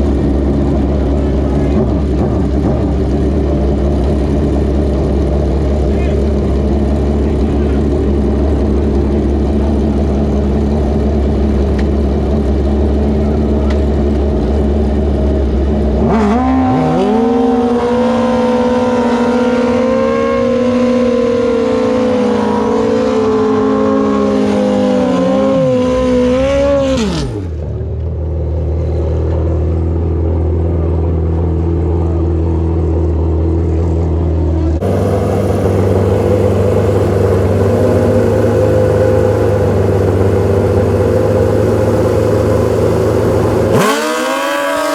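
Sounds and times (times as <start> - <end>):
racing engine revving: 34.8 - 44.9.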